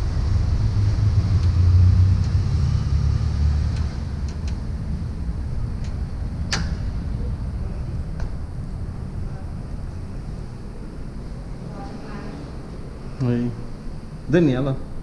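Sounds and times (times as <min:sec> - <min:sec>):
motorized bicycle rumble: 0:00.0 - 0:15.0
sharp click: 0:05.8 - 0:06.8.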